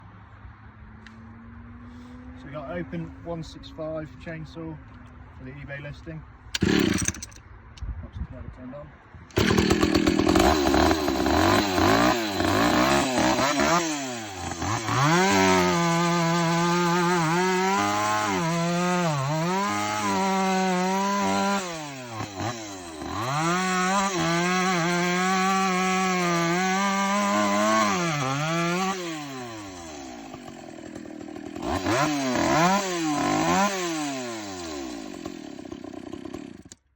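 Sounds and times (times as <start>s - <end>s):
chainsaw revving while cutting wood: 6.6s - 7.3s, 9.3s - 36.8s.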